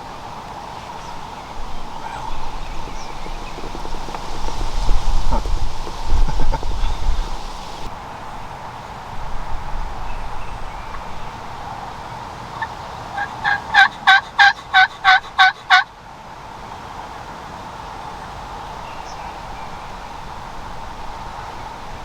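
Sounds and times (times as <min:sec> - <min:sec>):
turkey yelps: 0:12.6 - 0:15.8.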